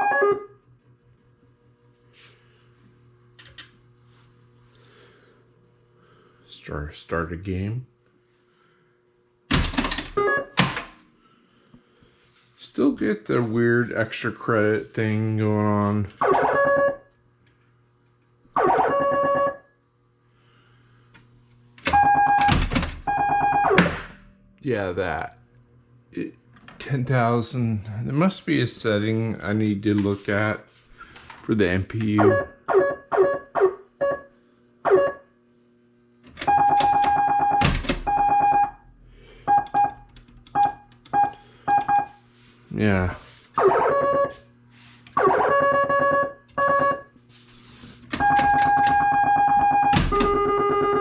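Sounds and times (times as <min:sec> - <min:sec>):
pinball machine game tones: 0:00.0 - 0:00.6, 0:09.5 - 0:11.0, 0:18.6 - 0:19.6, 0:21.8 - 0:24.6, 0:36.3 - 0:38.8, 0:39.4 - 0:42.2, 0:48.1 - 0:51.0.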